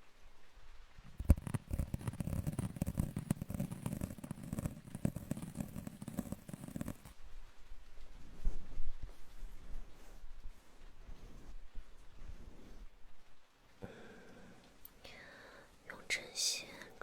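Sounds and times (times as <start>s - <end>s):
small crackles and taps: 1.0s - 9.6s.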